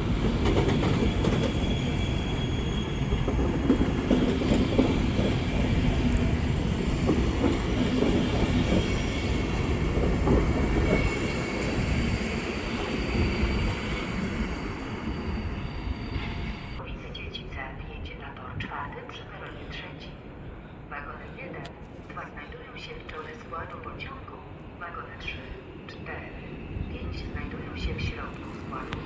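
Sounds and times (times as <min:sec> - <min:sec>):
train wheels rumbling on rails: 0:00.0 - 0:16.8
high wheel squeal: 0:01.1 - 0:03.4, 0:10.8 - 0:16.8.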